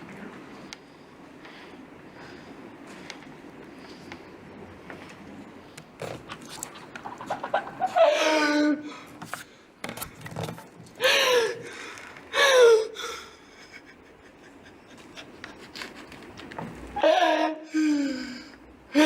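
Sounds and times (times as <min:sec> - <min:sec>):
person crying out loudly: 0:07.8 - 0:09.0, 0:17.0 - 0:18.4.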